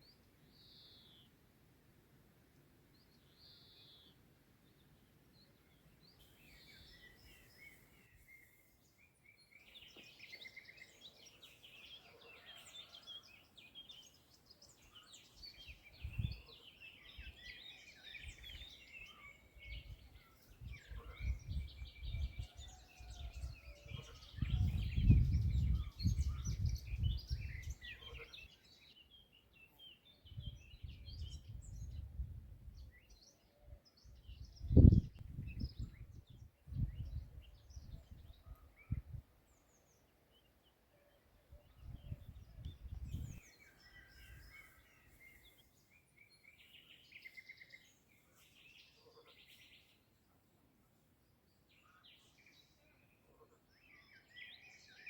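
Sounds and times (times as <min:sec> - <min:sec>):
songbirds singing and chirping: 0:00.0 - 0:55.0.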